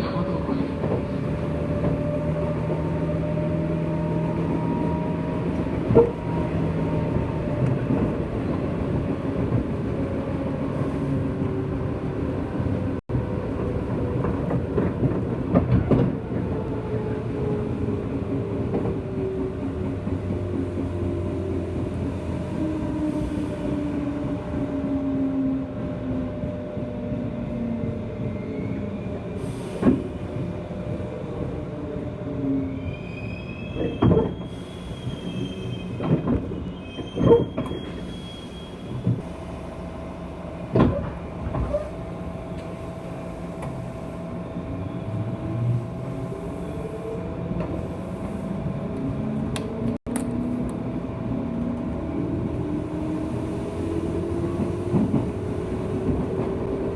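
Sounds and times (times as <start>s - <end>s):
wheels squealing on rails: 32.5s - 39.8s.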